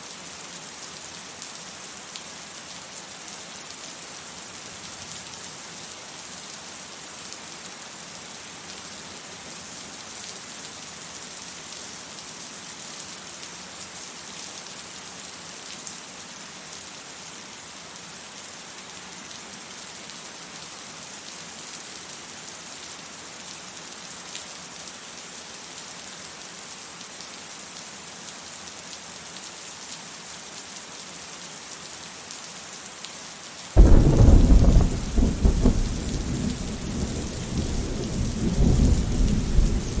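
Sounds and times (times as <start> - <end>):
rain falling: 0.1 - 40.0
thunder clap: 33.8 - 40.0.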